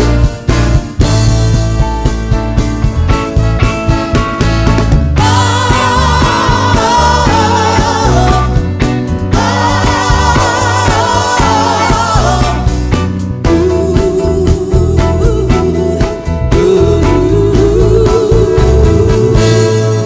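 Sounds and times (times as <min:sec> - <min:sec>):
bass and drums: 0:00.0 - 0:20.0
voices singing in harmony: 0:05.2 - 0:20.0.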